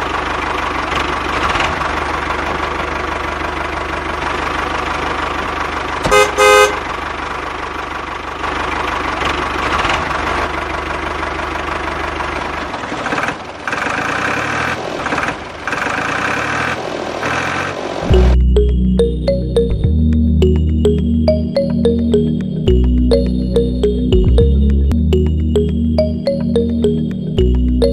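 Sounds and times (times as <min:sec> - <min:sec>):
engine running: 0:00.0 - 0:27.9
horn toots: 0:06.1 - 0:06.9
music: 0:18.1 - 0:27.9.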